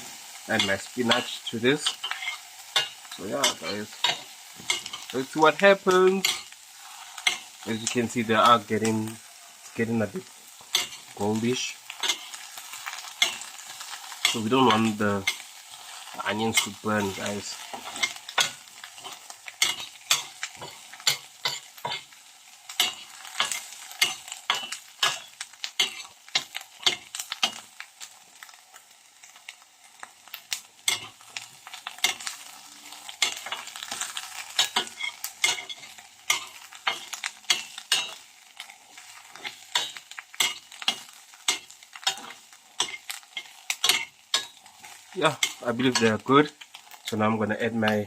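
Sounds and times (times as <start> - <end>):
onions sizzling in a pan: 0.0 - 48.0
utensil scraping a pan: 10.6 - 22.1.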